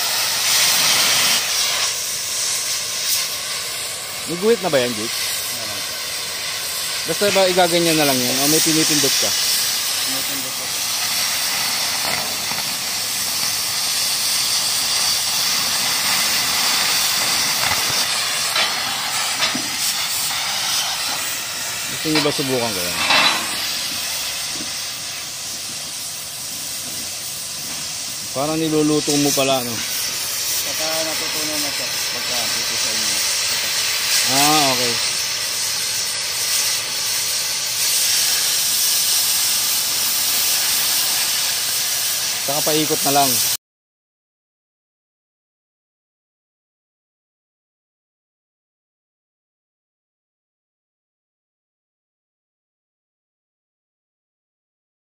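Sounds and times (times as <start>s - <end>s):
cutting torch hissing: 0.0s - 43.6s.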